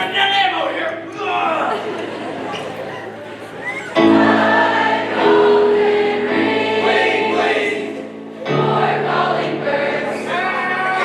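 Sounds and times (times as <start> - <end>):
choir singing: 3.6 - 11.0.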